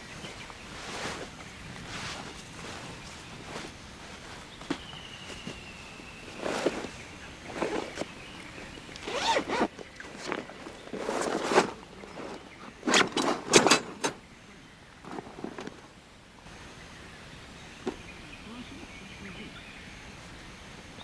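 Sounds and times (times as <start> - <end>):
zipper being pulled: 6.3 - 14.2.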